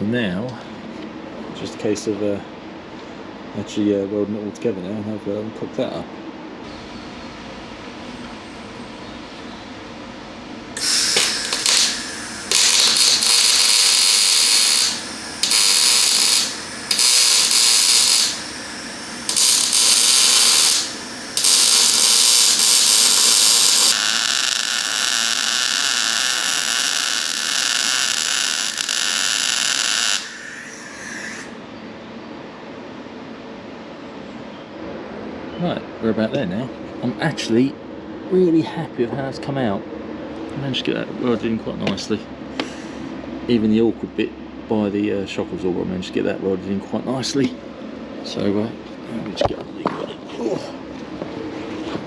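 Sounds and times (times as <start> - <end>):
welder arcing: 6.7 - 31.5.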